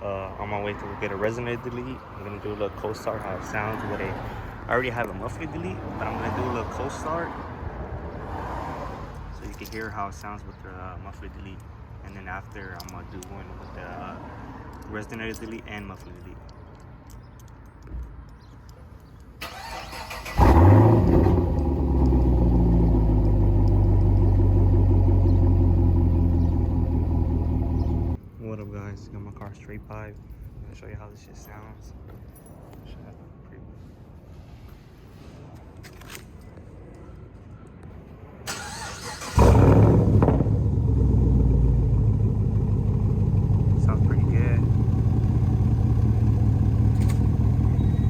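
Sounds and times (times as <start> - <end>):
car engine revving and idling: 19.6 - 28.2, 38.7 - 48.0.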